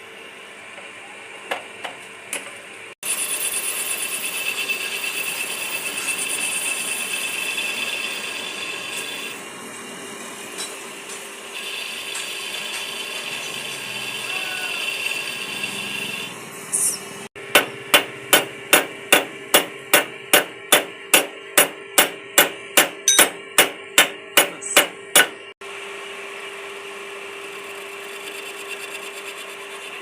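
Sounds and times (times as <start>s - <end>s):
hammer striking: 17.4s - 25.4s.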